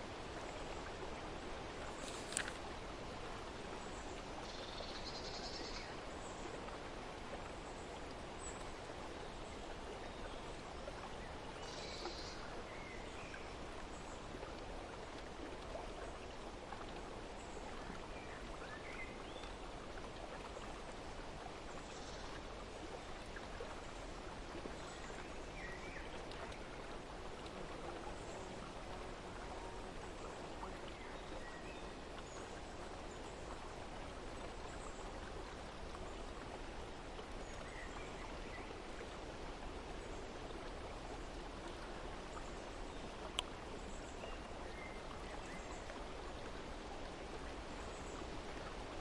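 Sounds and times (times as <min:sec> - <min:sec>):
flowing water: 0:00.0 - 0:49.0.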